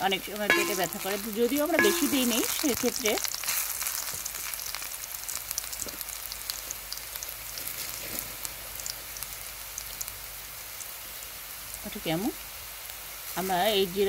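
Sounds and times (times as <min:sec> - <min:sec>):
onions sizzling in hot oil: 0:00.0 - 0:14.0
crackles and pops of oil: 0:00.4 - 0:10.2.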